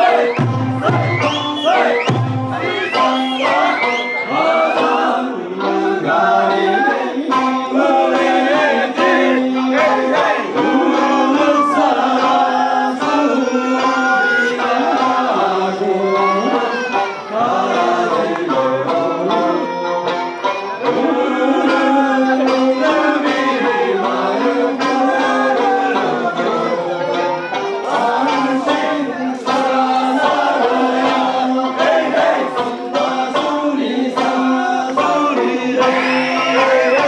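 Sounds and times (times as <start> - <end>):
voices singing folk song: 0.0 - 37.0
drum strikes: 0.1 - 3.2.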